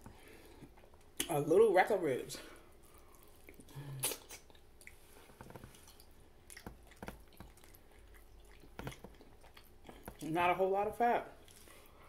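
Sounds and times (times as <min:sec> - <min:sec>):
wet chewing and biting: 0:02.8 - 0:10.2.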